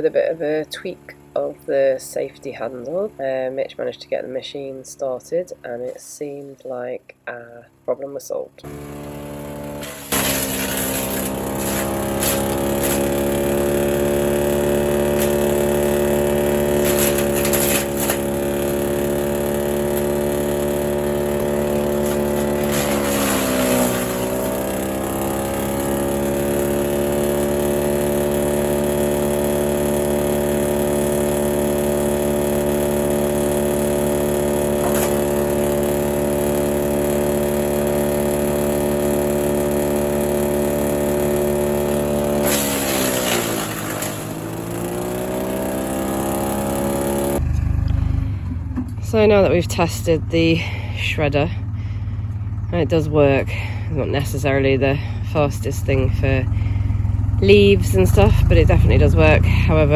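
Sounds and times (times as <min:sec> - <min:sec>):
garden shredder engine running: 0:00.0 - 0:07.9, 0:08.5 - 0:59.9
sharp cracks: 0:08.9 - 0:26.0, 0:42.4 - 0:46.0.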